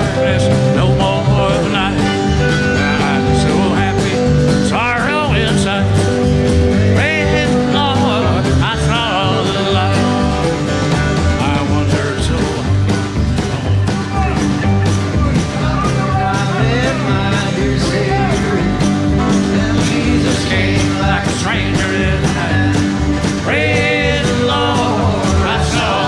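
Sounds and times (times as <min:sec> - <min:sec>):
live country band playing: 0:00.0 - 0:26.0
steady drum beat: 0:00.0 - 0:26.0.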